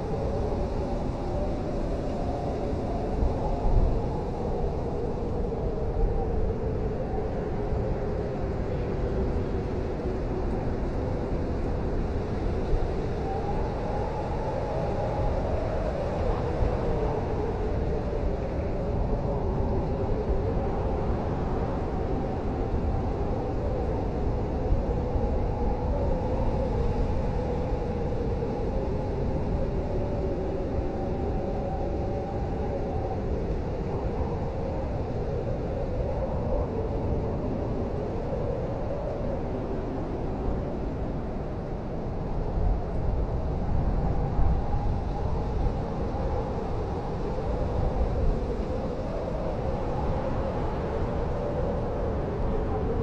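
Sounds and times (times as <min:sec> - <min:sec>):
blizzard wind howling: 0:00.0 - 0:53.0.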